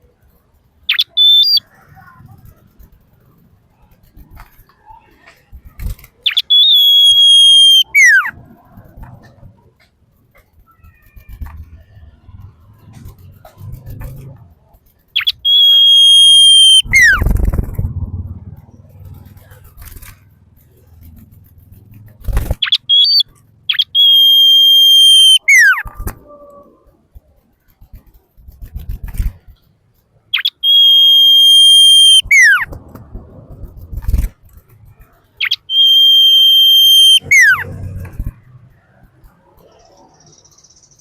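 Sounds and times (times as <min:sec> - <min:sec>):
bird singing piercing whistles: 0:00.9 - 0:01.6, 0:06.2 - 0:08.3, 0:15.2 - 0:17.3, 0:22.6 - 0:25.8, 0:30.3 - 0:32.7, 0:35.4 - 0:37.6.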